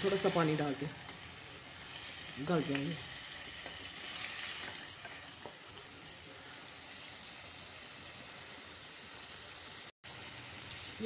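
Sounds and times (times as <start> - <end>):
potatoes sizzling in a pot: 0.0 - 11.0
wooden spoon scraping a pot: 2.7 - 5.8.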